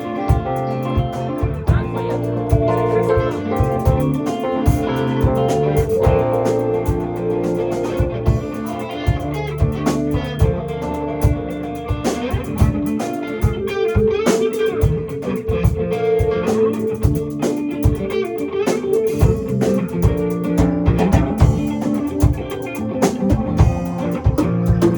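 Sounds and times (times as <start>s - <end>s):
bass guitar: 0.0s - 24.9s
guitar: 0.0s - 24.9s.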